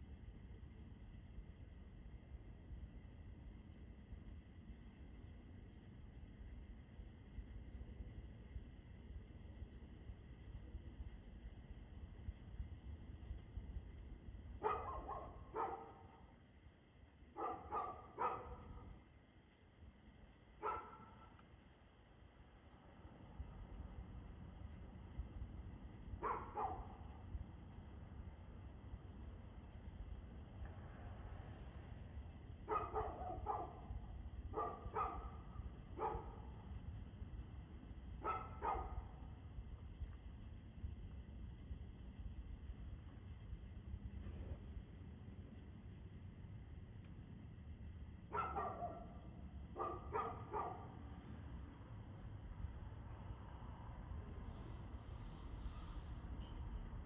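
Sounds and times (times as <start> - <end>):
steady low rumble: 0.0 - 57.0
dog barking: 14.6 - 16.3, 17.4 - 18.9, 20.6 - 21.3, 26.2 - 27.0, 32.7 - 36.5, 38.2 - 39.2, 48.3 - 51.0.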